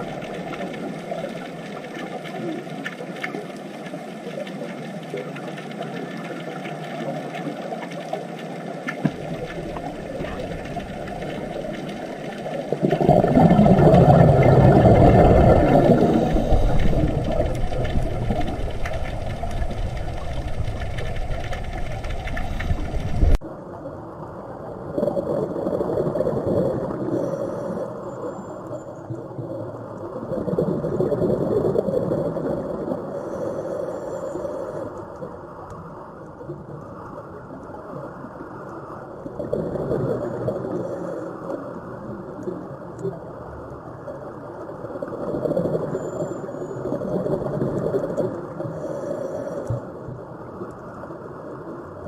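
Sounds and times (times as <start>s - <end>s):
underwater water rush: 0.0s - 52.0s
diver exhaling bubbles: 9.2s - 23.4s.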